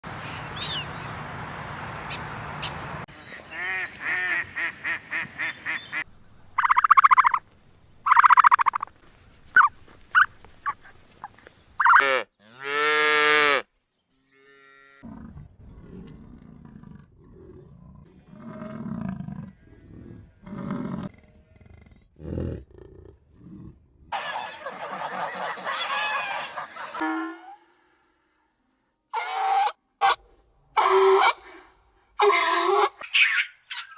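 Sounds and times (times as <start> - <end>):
farm animal calls: 6.6 - 7.4, 8.1 - 8.9, 9.5 - 12.9.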